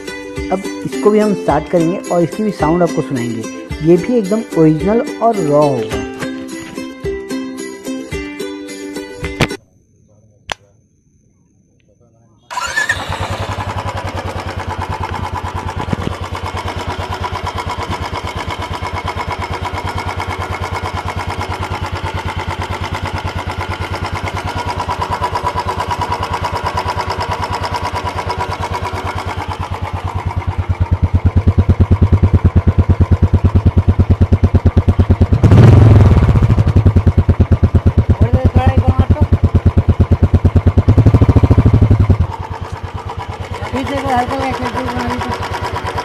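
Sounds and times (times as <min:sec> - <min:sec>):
motorcycle engine idling: 0:12.5 - 0:46.0.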